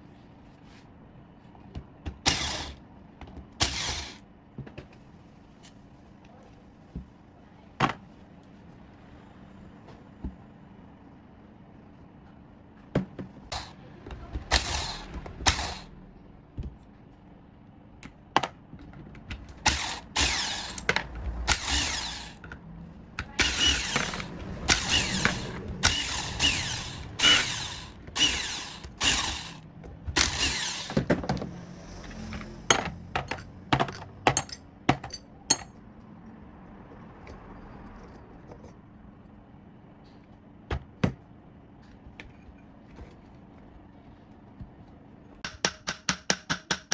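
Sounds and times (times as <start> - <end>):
hand tool rasping strokes: 2.3 - 2.8, 3.6 - 4.2, 14.5 - 15.9, 19.6 - 20.9, 21.5 - 22.4, 23.2 - 29.6, 30.2 - 31.1
tool clicks and knocks: 13.0 - 15.9, 18.0 - 22.6, 23.2 - 31.5, 45.4 - 46.9.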